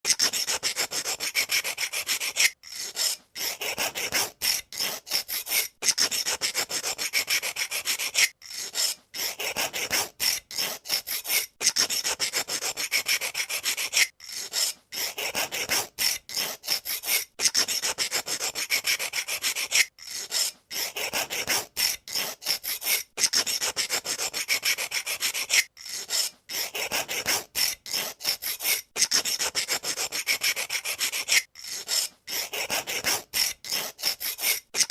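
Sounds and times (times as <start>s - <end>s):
pencil sharpener scraping: 0.0s - 34.9s.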